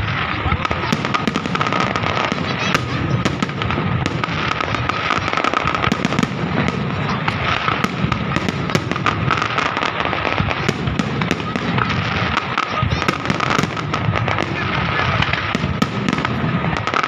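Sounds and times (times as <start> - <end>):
fireworks crackling and popping: 0.0 - 17.0.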